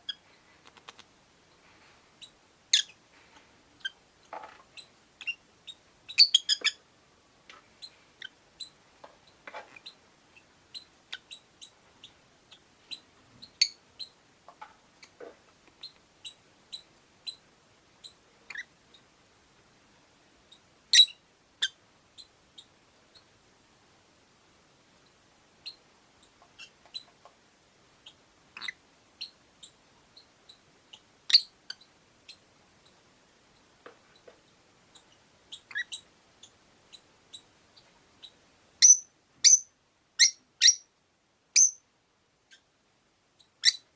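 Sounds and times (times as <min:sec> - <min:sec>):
lovebirds chirping: 0:01.5 - 0:03.0, 0:03.8 - 0:06.8, 0:07.7 - 0:14.2, 0:14.9 - 0:17.4, 0:18.0 - 0:19.1, 0:20.5 - 0:23.3, 0:28.0 - 0:40.9, 0:41.5 - 0:41.9, 0:43.4 - 0:43.9.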